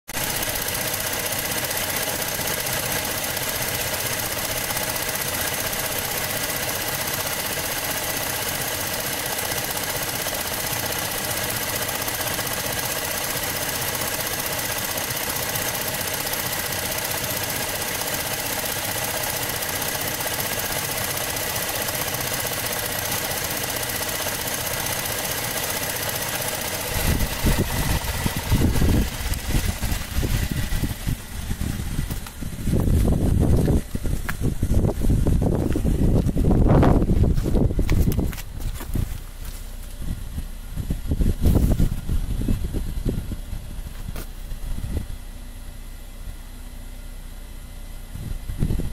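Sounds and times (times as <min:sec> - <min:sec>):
car engine idling: 0:00.1 - 0:48.9
low rumbling bursts: 0:26.6 - 0:46.5.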